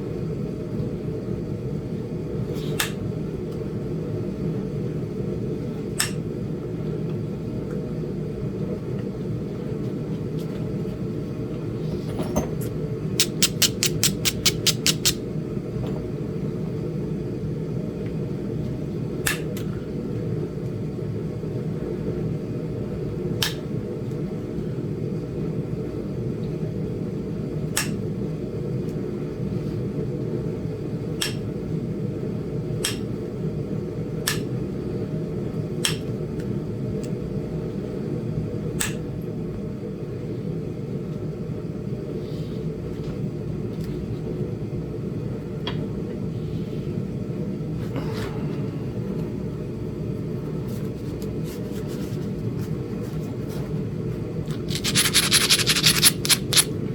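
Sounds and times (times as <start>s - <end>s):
sharp clicks of stone knapping: 13.2s - 15.2s, 54.7s - 56.7s.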